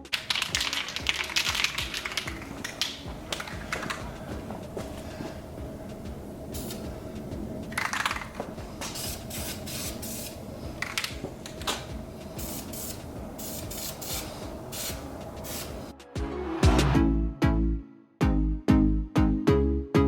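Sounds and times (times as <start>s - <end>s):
aerosol spray hissing: 0.9s - 15.9s.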